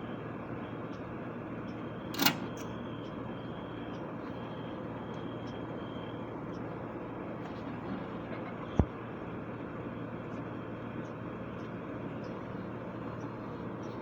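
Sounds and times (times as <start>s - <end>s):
outdoor background noise: 0.0s - 14.0s
sharp click: 2.1s - 2.7s.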